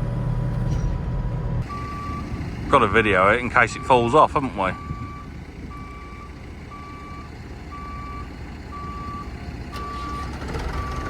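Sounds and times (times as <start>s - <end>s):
diesel engine running: 0.0s - 11.0s
reversing alarm beeping: 1.6s - 3.0s, 3.6s - 11.0s.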